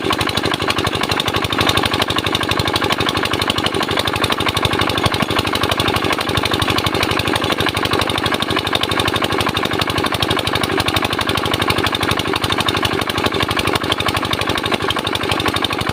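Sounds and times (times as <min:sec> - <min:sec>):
diesel engine thumping: 0:03.3 - 0:09.8.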